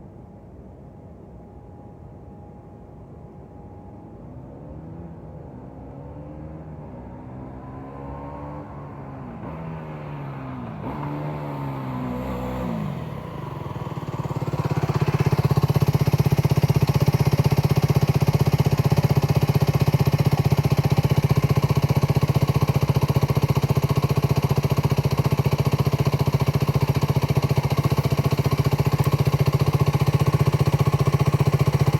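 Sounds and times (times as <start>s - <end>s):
motorcycle engine revving: 6.4s - 31.9s.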